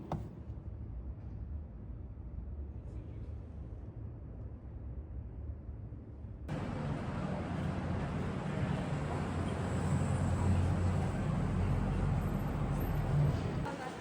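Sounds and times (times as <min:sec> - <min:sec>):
low rumble of traffic: 0:00.0 - 0:14.0.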